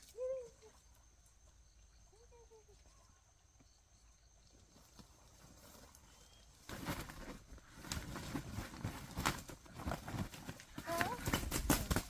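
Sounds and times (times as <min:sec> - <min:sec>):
close rustling: 0:04.6 - 0:12.0
tapping on rough ground: 0:06.7 - 0:12.0.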